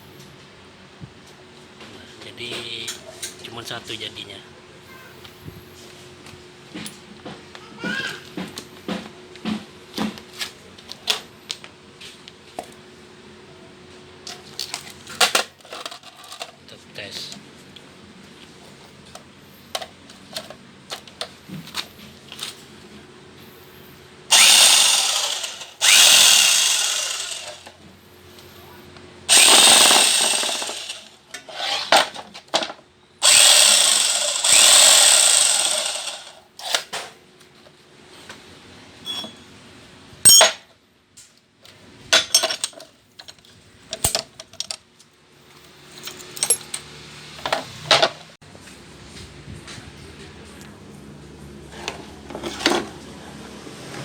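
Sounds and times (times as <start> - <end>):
electric jackhammer hammering: 24.3 - 27.8, 29.3 - 32.1, 33.2 - 36.4.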